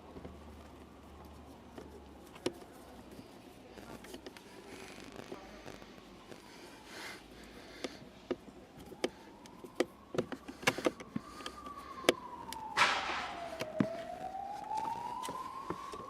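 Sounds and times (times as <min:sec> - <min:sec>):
siren wailing: 0:04.2 - 0:16.0
sharp clicks and knocks: 0:07.8 - 0:16.0.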